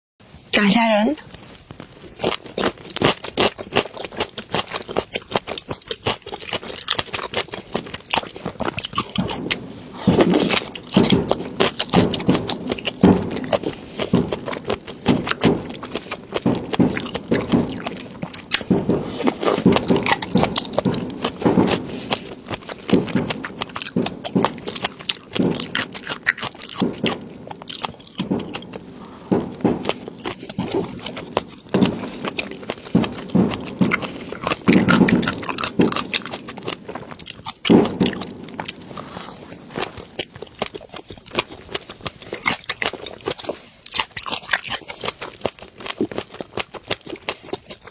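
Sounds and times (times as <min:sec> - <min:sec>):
wet chewing and mouth smacking: 0:01.2 - 0:47.9.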